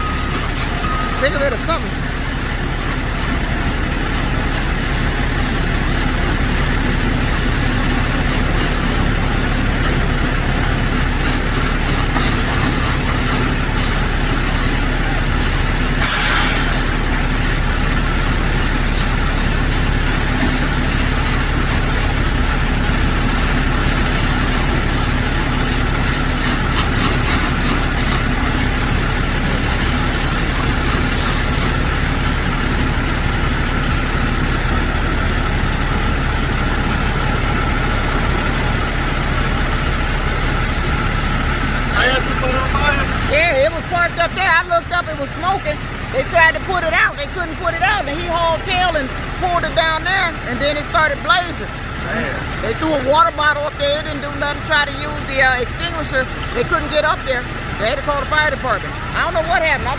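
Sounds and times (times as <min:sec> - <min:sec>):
truck diesel engine idling: 0:00.0 - 0:59.9
short air hiss: 0:16.0 - 0:16.9.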